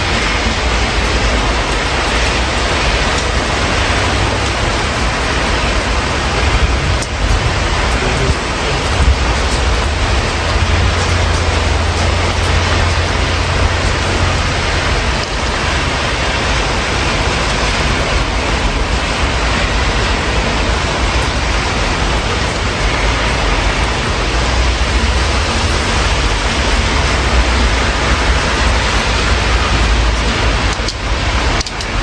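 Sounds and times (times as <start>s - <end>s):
low rumble of city traffic: 0.0s - 32.0s
steady rain hiss: 0.0s - 32.0s.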